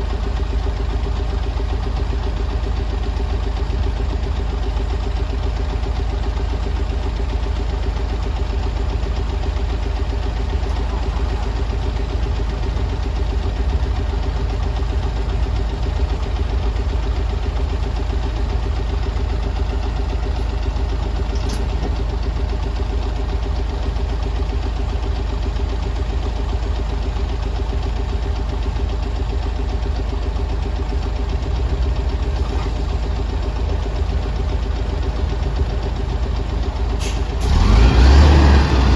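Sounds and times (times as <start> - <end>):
bus engine idling: 0.0 - 38.9.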